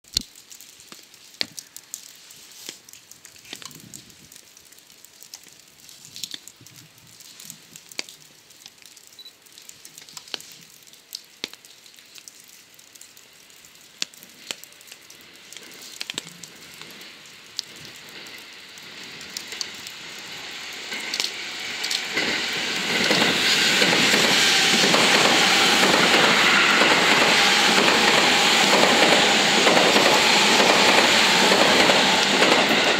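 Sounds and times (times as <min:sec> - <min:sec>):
rain pattering: 0:00.0 - 0:32.9
electric train passing: 0:16.5 - 0:32.9
train wheels clattering over rail joints: 0:20.8 - 0:32.9.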